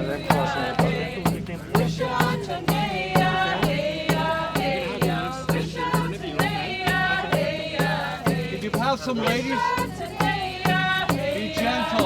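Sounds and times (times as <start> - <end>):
steady drum beat: 0.0 - 12.0
voices chanting: 0.0 - 12.0.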